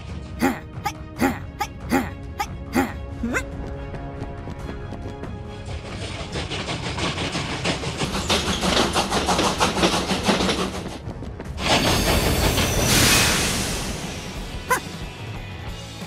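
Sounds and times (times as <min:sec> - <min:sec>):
train rushing noise: 0:04.0 - 0:15.8
locomotive clattering on rails: 0:04.5 - 0:14.4.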